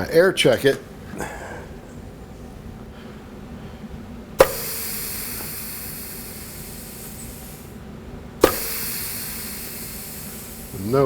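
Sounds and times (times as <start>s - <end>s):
compressed air hissing: 0.9s - 11.0s
sharp knock: 4.4s - 5.7s, 8.4s - 10.6s.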